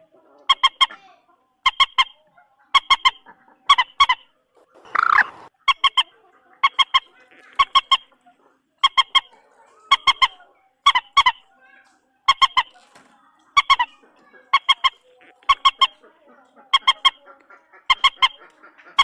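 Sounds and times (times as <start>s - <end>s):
moorhen honking calls: 2.8s - 6.0s, 14.5s - 16.0s, 16.7s - 17.2s
harsh rasping bird call: 2.8s - 6.1s.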